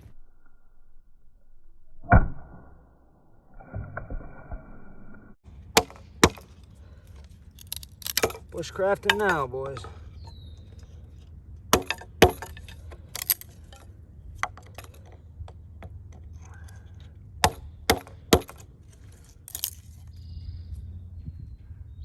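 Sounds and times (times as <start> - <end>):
axe splitting firewood: 5.5 - 20.2.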